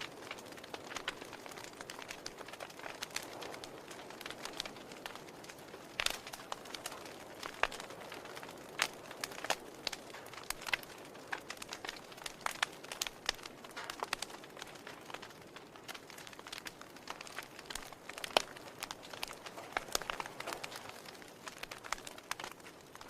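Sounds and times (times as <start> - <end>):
fire popping and snapping: 0.0 - 23.0
wood fire crackling: 0.0 - 23.0.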